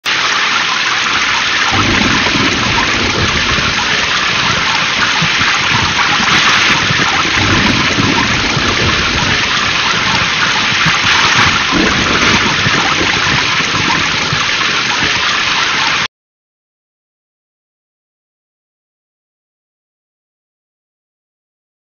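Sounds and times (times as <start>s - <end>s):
heavy rain: 0.0s - 16.1s
thunder rumbling: 0.3s - 16.1s.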